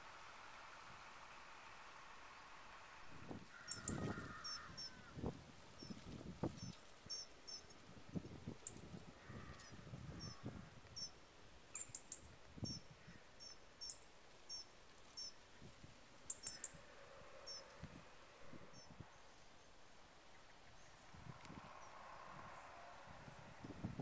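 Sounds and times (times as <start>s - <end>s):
small bird chirping: 3.6s - 5.0s, 5.8s - 7.9s, 8.6s - 15.4s, 16.3s - 16.8s, 17.4s - 17.8s.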